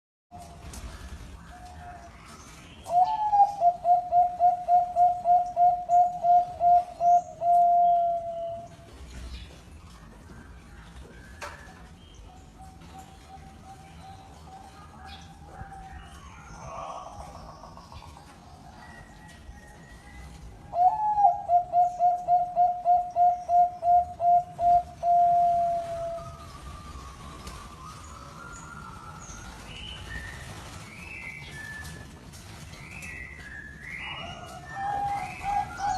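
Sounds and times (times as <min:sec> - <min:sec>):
dove cooing: 0:02.8 - 0:08.8, 0:20.7 - 0:26.5, 0:34.1 - 0:35.9.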